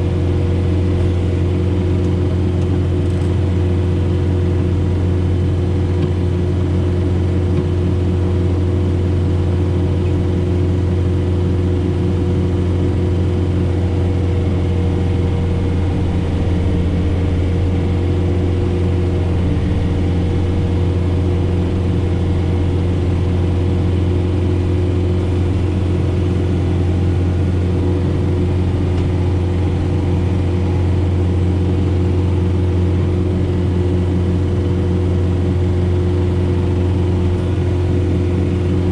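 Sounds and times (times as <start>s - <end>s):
tractor diesel engine running: 0.0s - 38.9s
faint steady whine: 11.4s - 38.9s.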